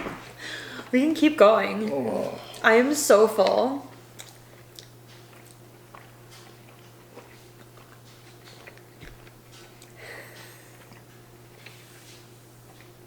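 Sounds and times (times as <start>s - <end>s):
steady low hum: 0.0s - 13.0s
chewing close to microphone: 3.4s - 13.0s.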